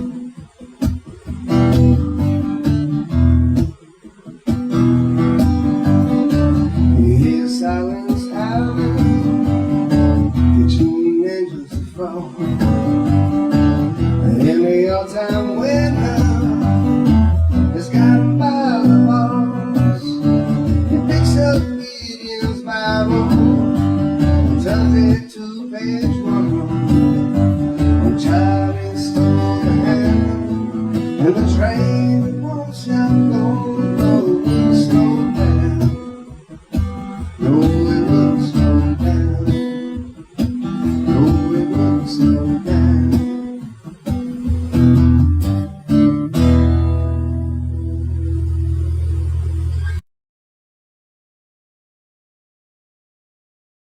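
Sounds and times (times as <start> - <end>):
strummed guitar chords: 0.0 - 50.0
bending lead melody: 25.9 - 50.0.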